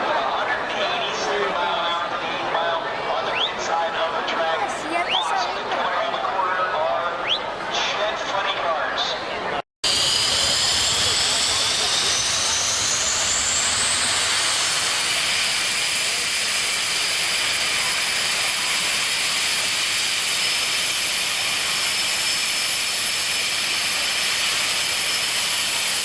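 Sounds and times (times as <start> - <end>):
jet turbine engine whine: 9.8 - 26.0.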